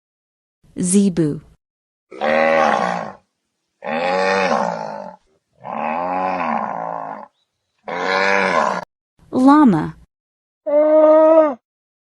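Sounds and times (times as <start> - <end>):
cattle mooing: 2.1 - 3.2, 3.8 - 8.9.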